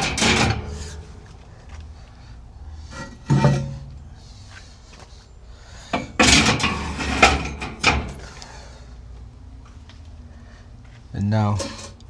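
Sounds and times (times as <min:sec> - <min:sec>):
metal grill grates clanking: 0:00.0 - 0:01.5, 0:02.8 - 0:04.1, 0:05.9 - 0:08.7, 0:11.4 - 0:12.0.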